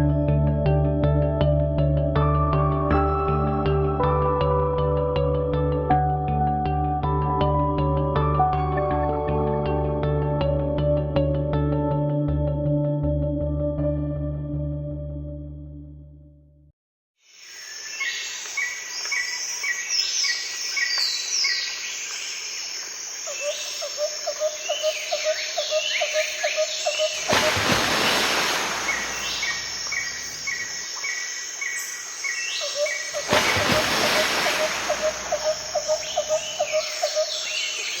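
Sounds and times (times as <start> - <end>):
birds chirping and whistling: 24.7 - 38.0.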